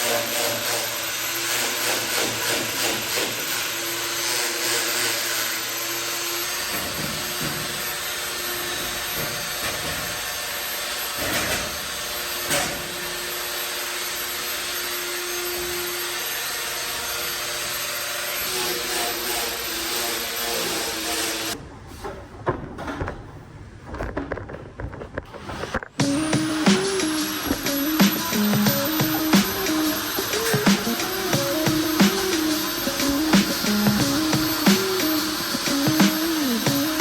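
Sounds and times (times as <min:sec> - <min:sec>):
power tool motor whirring: 0:25.6 - 0:37.0.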